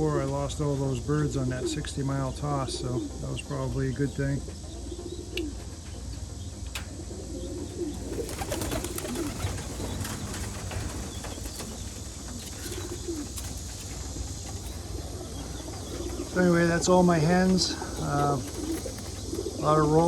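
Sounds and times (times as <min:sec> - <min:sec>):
pigeons cooing: 0:00.0 - 0:20.0
steady low hum: 0:00.0 - 0:20.0
wing flaps: 0:07.7 - 0:19.8
clicks and rustles: 0:08.2 - 0:16.4.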